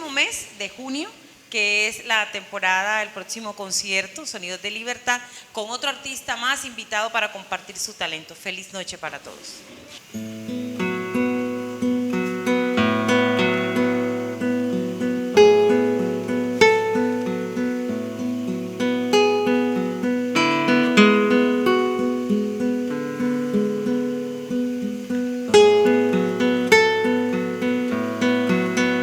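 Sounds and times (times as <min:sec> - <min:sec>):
acoustic guitar playing: 0:10.1 - 0:29.0.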